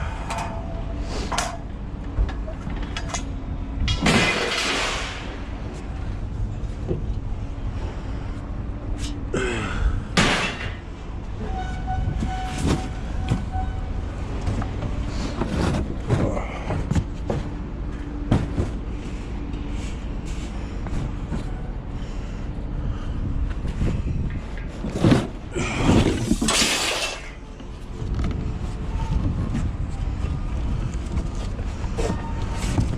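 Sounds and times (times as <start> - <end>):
scrap metal clanking and banging: 0.2 - 5.6, 10.1 - 13.8.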